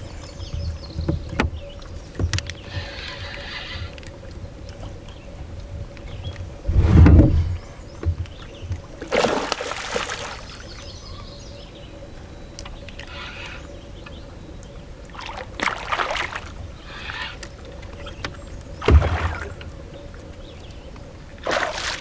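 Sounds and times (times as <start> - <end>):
knocks and handling in canoe: 0.1 - 9.4, 17.8 - 19.8
heavy thump: 6.7 - 7.7
short rushing hiss: 6.7 - 7.8.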